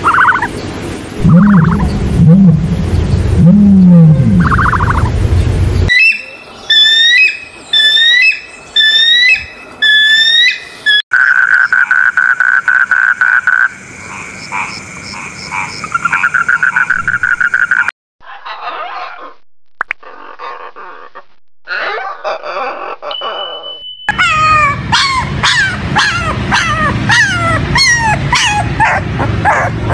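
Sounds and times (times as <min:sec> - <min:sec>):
tree frog trilling: 0:00.0 - 0:00.5, 0:01.2 - 0:02.0, 0:03.4 - 0:05.1, 0:05.9 - 0:17.9
short rising high calls: 0:01.2 - 0:02.8
low animal call: 0:01.2 - 0:05.2.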